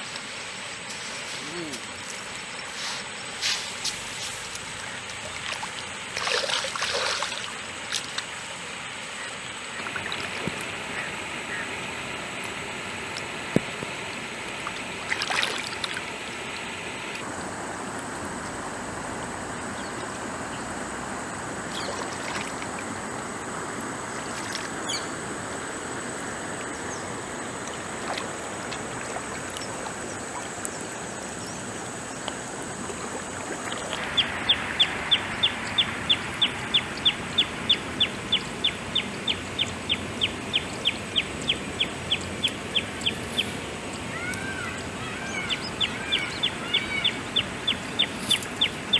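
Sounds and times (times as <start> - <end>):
stream water running: 0.0 - 48.9.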